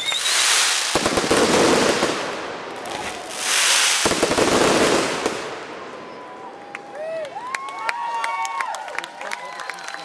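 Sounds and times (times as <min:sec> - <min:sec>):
fireworks bangs and crackling: 0:00.0 - 0:06.6.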